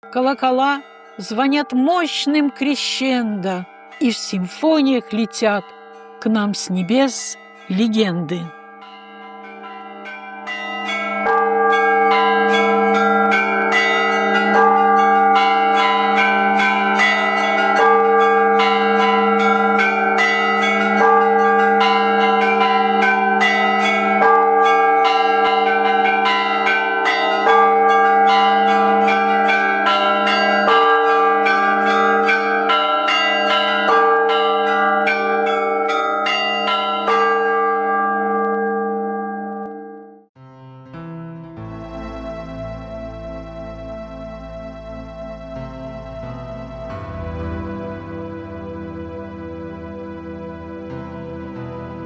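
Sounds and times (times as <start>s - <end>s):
church bells pealing: 0.0s - 40.3s, 41.5s - 52.0s
large bell ringing: 0.0s - 40.3s.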